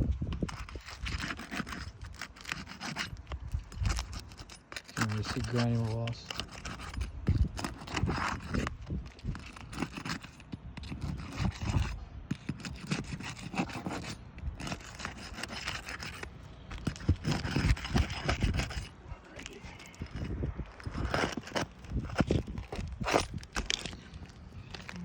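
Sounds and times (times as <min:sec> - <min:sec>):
scraping on roof shingles: 0:00.4 - 0:25.0.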